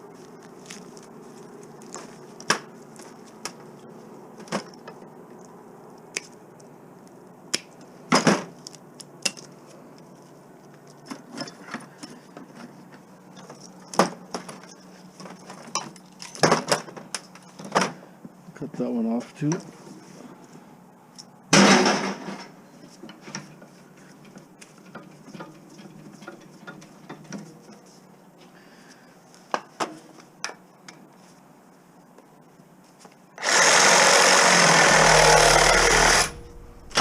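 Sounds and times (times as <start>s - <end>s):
steady low hum: 34.6s - 37.0s.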